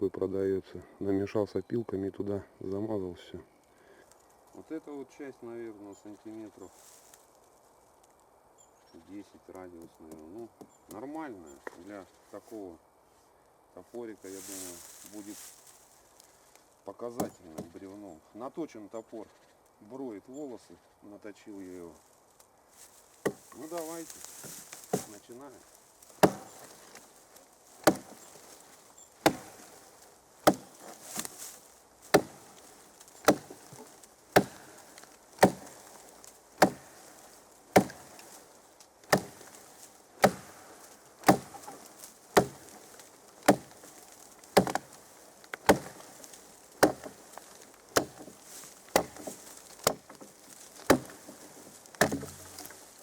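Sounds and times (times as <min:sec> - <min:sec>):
axe chopping log: 0:17.2 - 0:17.8, 0:23.2 - 0:25.2, 0:26.1 - 0:27.1, 0:27.7 - 0:52.8.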